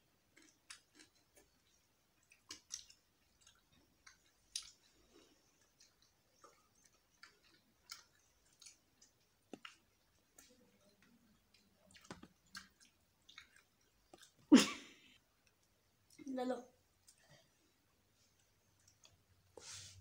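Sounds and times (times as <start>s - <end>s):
people chewing and lip-smacking: 0.3s - 14.5s, 18.4s - 19.3s.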